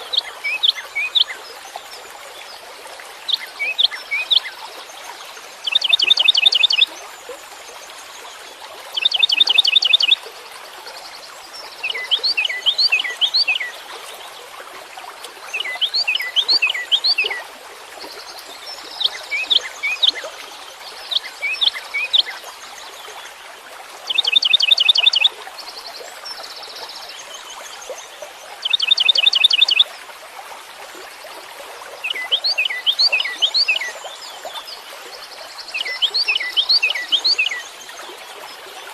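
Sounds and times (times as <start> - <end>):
songbird singing: 0.0 - 2.1, 3.3 - 4.6, 5.6 - 6.9, 9.0 - 10.2, 11.6 - 14.2, 15.5 - 17.4, 18.2 - 20.4, 24.1 - 25.3, 28.6 - 29.9, 32.0 - 34.8, 35.4 - 38.3.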